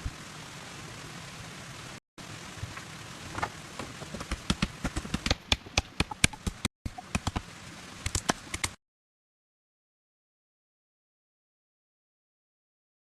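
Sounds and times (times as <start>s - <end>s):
rain hiss: 0.0s - 5.4s, 6.0s - 8.8s.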